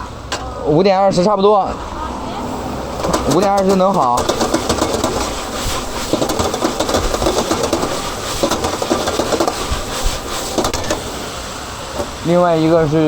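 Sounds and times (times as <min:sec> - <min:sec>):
steady rushing noise: 0:01.1 - 0:13.0
cookware clattering: 0:03.0 - 0:11.1, 0:11.9 - 0:12.2.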